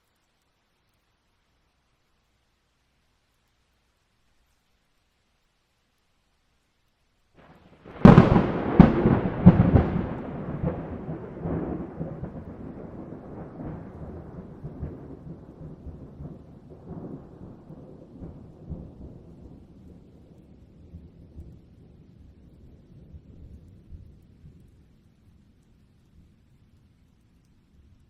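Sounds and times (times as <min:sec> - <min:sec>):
thunder cracking and rumbling: 0:07.4 - 0:24.9.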